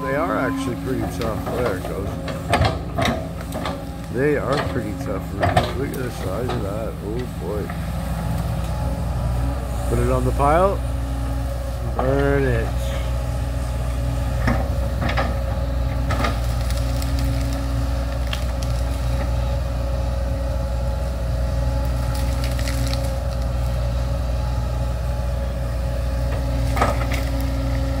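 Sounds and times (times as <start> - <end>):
diesel engine running: 0.0 - 28.0
wood cracking and knocking: 21.9 - 23.5.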